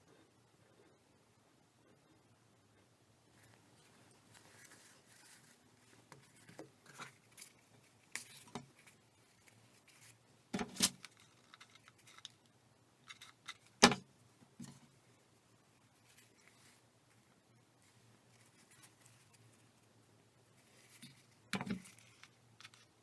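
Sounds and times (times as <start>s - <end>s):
paper rustling: 3.4s - 12.4s.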